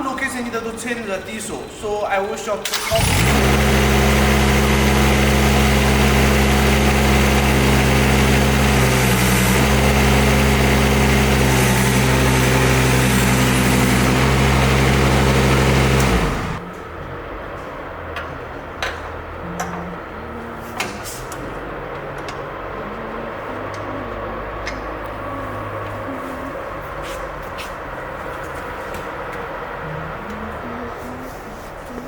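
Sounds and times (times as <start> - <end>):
diesel engine idling: 2.6 - 18.0.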